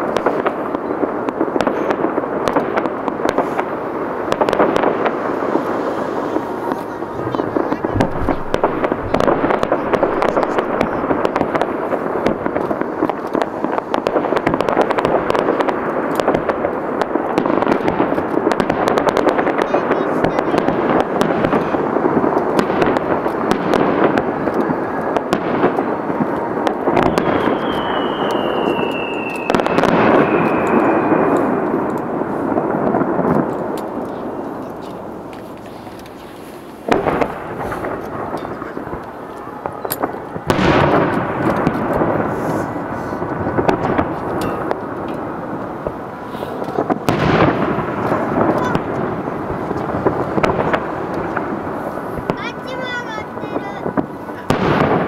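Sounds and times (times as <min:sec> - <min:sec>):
fireworks crackling: 0:00.0 - 0:55.0
loud firework burst: 0:00.0 - 0:55.0
fireworks whistle: 0:20.1 - 0:52.8.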